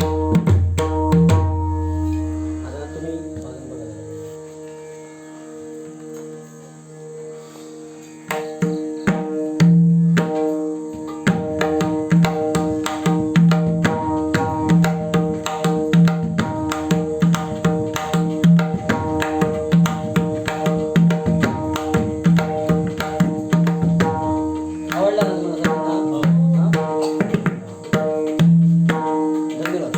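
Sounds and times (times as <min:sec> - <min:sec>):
hand drum played fast: 0:00.0 - 0:01.7, 0:11.2 - 0:29.9
drone of held notes: 0:01.4 - 0:11.4.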